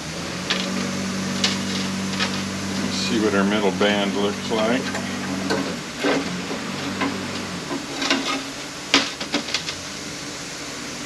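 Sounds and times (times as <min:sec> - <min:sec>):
low steady hum: 0:00.0 - 0:11.0
metal parts clinking and scraping: 0:01.4 - 0:02.5, 0:07.0 - 0:09.8.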